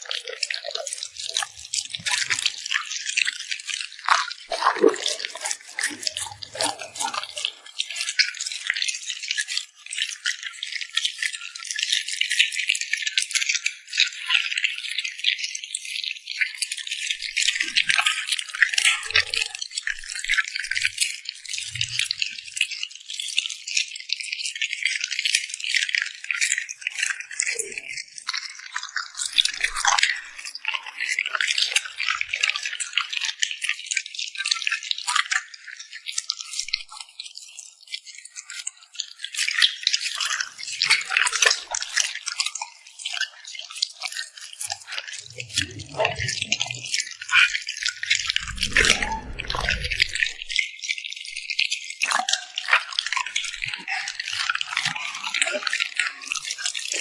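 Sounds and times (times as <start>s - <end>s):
puppy eating and lip-smacking: 44.6s - 47.5s.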